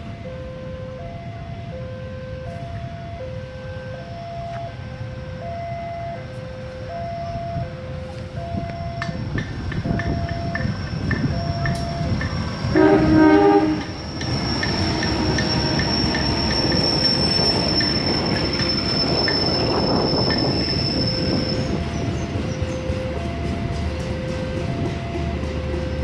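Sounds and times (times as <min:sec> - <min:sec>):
two-tone crossing alarm: 0:00.0 - 0:26.0
train wheels rumbling: 0:06.3 - 0:26.0
high wheel squeal: 0:10.2 - 0:23.1
train horn: 0:12.6 - 0:18.0.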